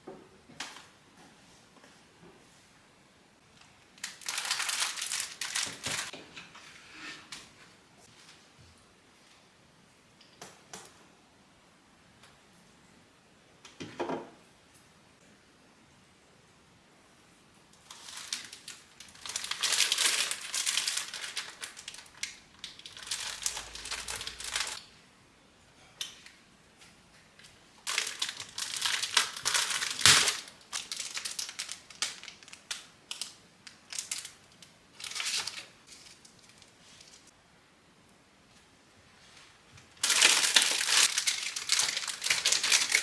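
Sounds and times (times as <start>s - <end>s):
wrapping material crinkling: 3.6s - 6.1s, 17.8s - 24.8s, 27.8s - 37.3s, 39.4s - 43.0s.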